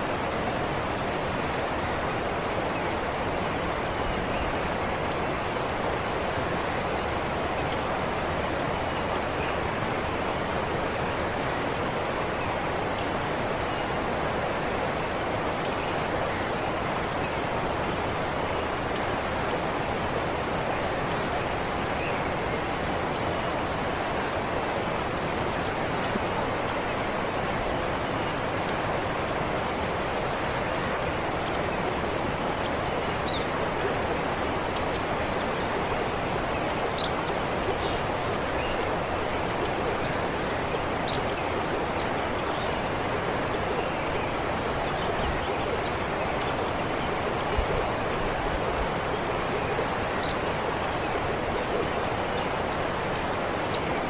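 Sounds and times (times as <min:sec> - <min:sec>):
stream flowing: 0:00.0 - 0:54.0
birds chirping: 0:25.6 - 0:54.0.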